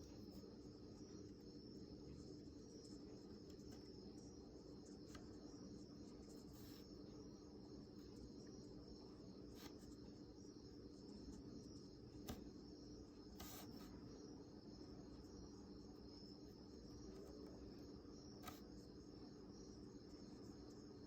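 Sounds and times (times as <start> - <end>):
faint steady hum: 0.0 - 21.0
faint ticks: 18.4 - 18.8.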